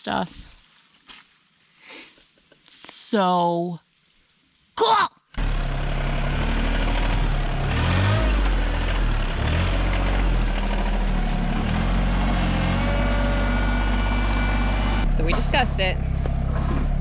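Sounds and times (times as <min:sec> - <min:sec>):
tractor engine running: 0:05.4 - 0:17.0.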